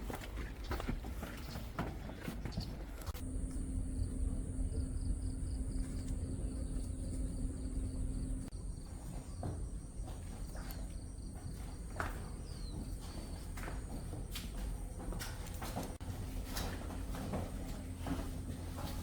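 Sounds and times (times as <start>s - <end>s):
low outdoor rumble: 1.8s - 11.8s
low steady hum: 2.9s - 11.2s
insects chirring: 3.1s - 14.0s.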